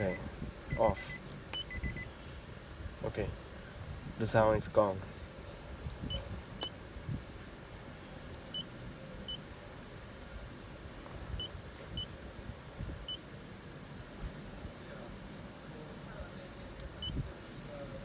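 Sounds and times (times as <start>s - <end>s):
short high electronic beeps: 0.0s - 0.9s, 1.6s - 2.1s.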